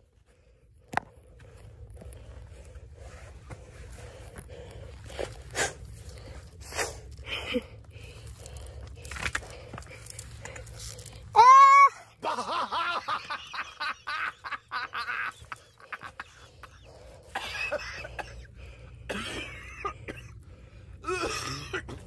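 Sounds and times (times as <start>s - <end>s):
effortful breaths and grunts: 0.0s - 12.3s, 13.4s - 22.0s
person crying out: 11.3s - 12.3s.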